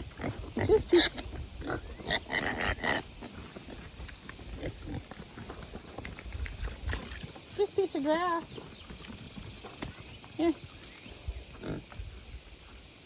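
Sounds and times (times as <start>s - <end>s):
piglets grunting and squealing: 0.0s - 5.1s, 11.6s - 12.0s.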